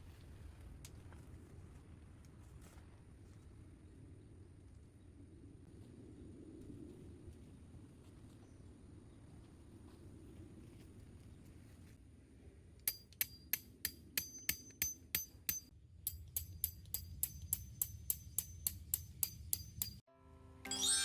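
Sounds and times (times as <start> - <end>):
hammer striking metal tent peg: 12.9 - 20.0.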